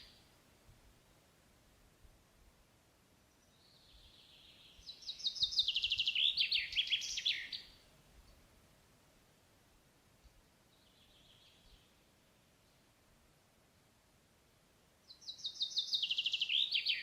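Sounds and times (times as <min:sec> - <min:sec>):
songbird singing: 0:00.0 - 0:00.8, 0:03.1 - 0:08.6, 0:10.2 - 0:13.0, 0:15.0 - 0:17.0.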